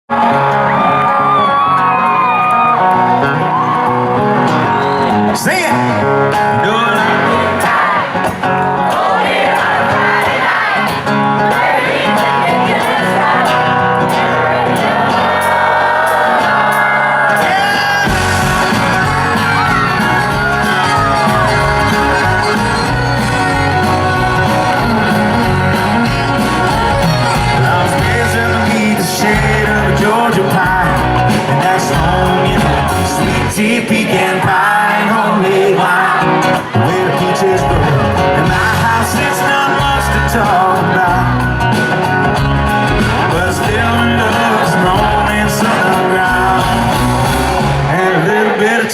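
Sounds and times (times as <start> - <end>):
crowd whooping: 0.1 - 48.9
live country band playing: 0.1 - 48.9
person singing: 12.2 - 41.8, 43.0 - 48.9.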